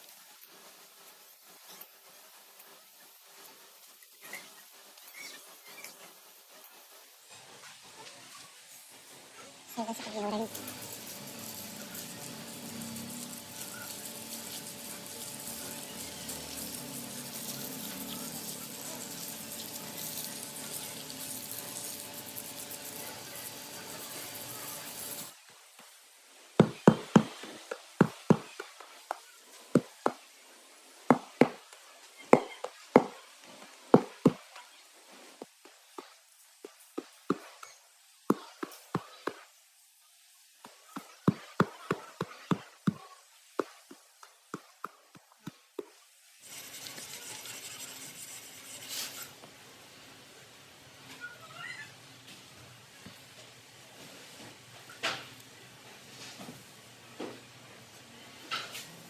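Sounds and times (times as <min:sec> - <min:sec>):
workshop hiss: 0:10.1 - 0:28.8, 0:46.2 - 0:51.1.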